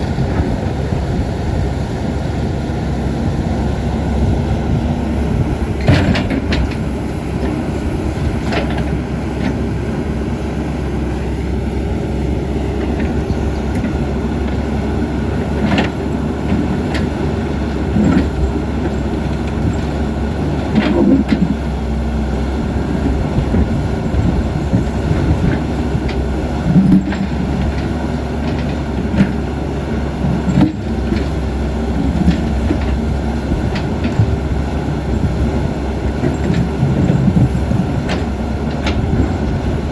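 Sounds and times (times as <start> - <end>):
excavator diesel engine running: 0.0 - 39.9
machine knocks and clanks: 5.4 - 9.7, 23.1 - 29.6, 36.1 - 39.9.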